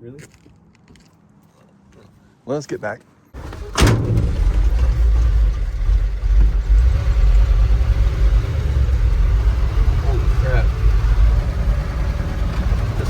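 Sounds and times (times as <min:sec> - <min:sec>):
truck engine rumbling: 0:03.4 - 0:13.0
sharp clunk: 0:03.6 - 0:05.2.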